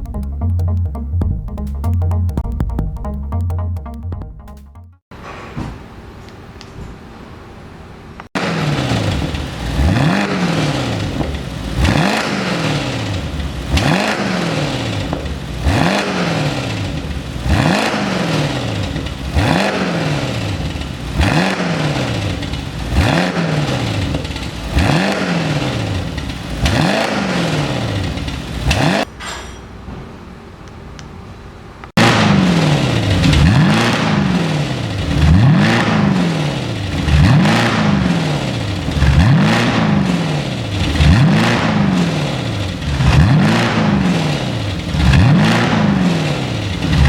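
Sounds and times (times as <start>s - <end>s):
car engine idling: 8.4s - 28.6s
car engine revving: 8.4s - 29.1s, 32.0s - 47.0s.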